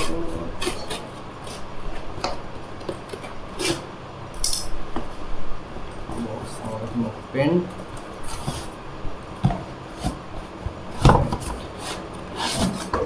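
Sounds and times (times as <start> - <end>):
knife cutting cardboard: 11.4 - 13.0
scraping rasp: 11.5 - 13.0.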